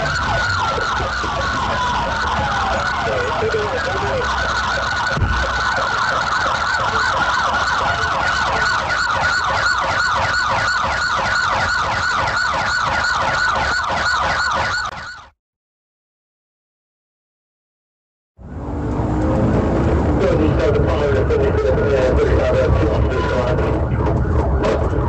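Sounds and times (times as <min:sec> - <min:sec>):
low vehicle rumble: 0:00.0 - 0:14.9, 0:18.4 - 0:25.0
police siren yelping: 0:00.0 - 0:15.4, 0:18.4 - 0:25.0
thump: 0:05.2 - 0:05.4.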